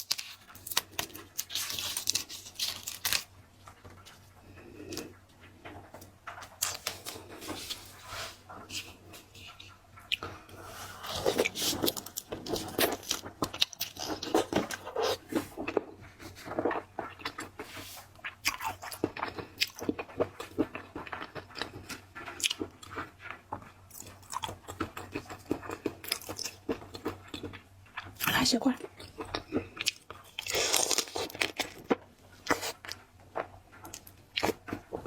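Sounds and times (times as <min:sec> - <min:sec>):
chewing with wet crunches: 0:11.0 - 0:35.0.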